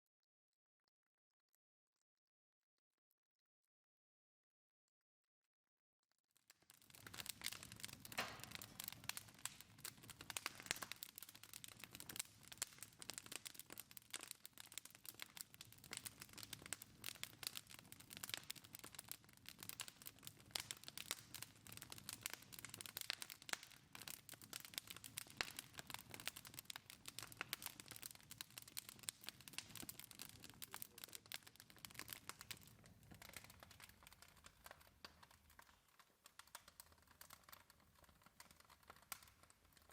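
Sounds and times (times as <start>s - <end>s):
fire crackling and popping: 6.4s - 39.9s
low rumble of fire: 6.8s - 35.7s.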